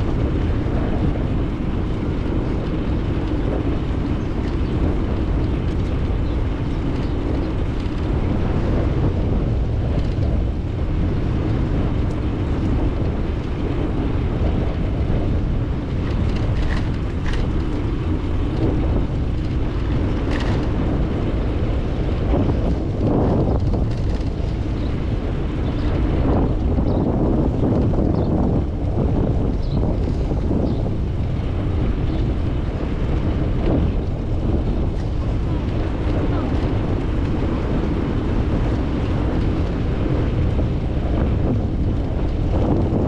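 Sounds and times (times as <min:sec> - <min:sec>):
road rumble: 0:00.0 - 0:43.0
wind buffeting microphone: 0:00.0 - 0:43.0.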